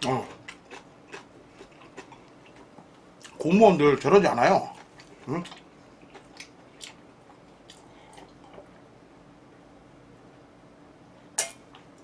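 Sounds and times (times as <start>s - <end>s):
soft chewing: 0.0s - 8.8s.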